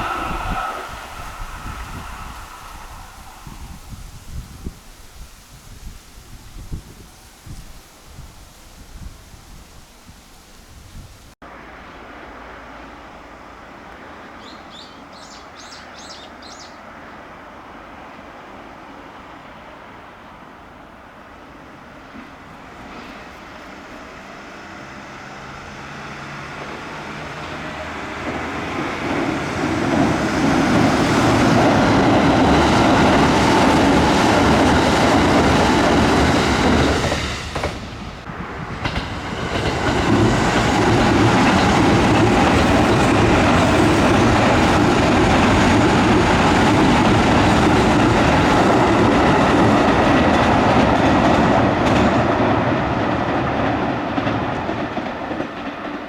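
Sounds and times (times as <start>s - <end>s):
electric train running past: 0.0s - 5.8s, 11.4s - 56.0s
wheels clacking over rail joints: 22.0s - 56.0s.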